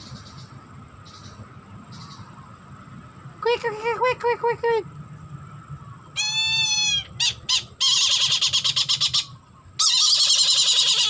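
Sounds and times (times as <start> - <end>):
bird of prey screeching: 6.2 - 11.0
bird of prey whining call: 6.2 - 11.0.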